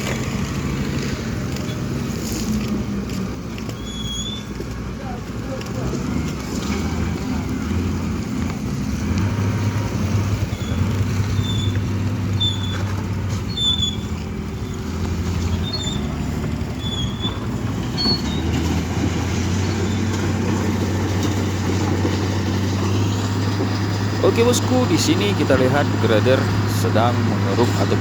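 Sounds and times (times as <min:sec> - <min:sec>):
diesel engine under load: 0:00.0 - 0:28.0
short high squeaks: 0:03.7 - 0:04.6, 0:10.5 - 0:14.8, 0:15.4 - 0:18.8.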